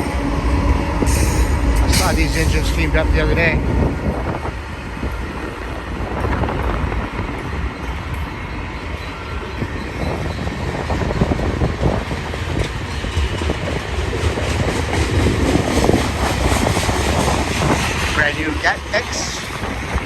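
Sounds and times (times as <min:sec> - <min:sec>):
wind on microphone: 0:00.0 - 0:08.8, 0:09.5 - 0:20.0
freight train wheels clacking: 0:00.0 - 0:20.0.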